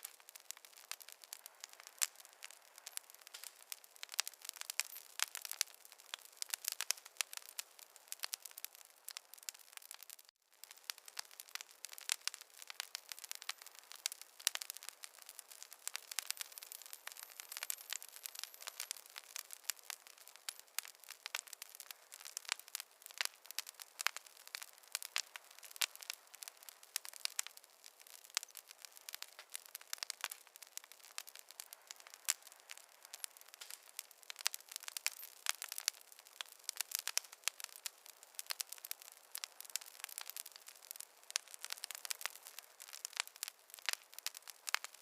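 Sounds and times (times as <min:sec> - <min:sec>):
wood fire crackling: 0:00.0 - 0:45.0.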